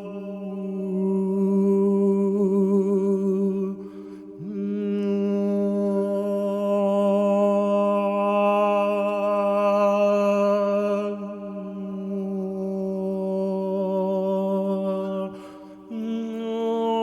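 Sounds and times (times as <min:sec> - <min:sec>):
man chanting long held tone: 0:00.0 - 0:03.6.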